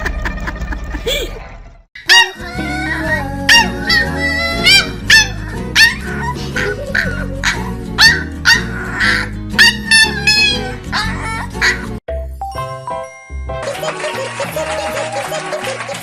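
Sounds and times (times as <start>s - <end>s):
puppy yapping: 2.0s - 2.9s, 3.5s - 12.0s
background music: 2.1s - 16.0s.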